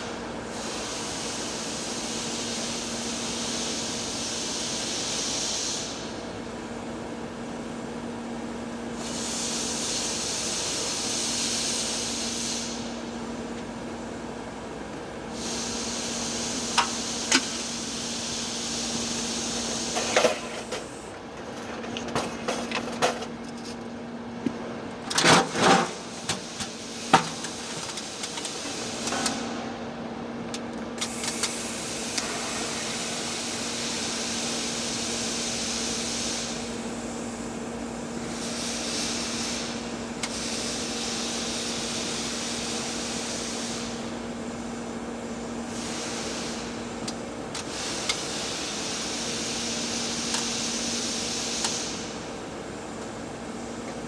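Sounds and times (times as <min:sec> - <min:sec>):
welding arc hiss and buzz: 0:08.9 - 0:14.2, 0:15.1 - 0:23.5, 0:25.1 - 0:54.0.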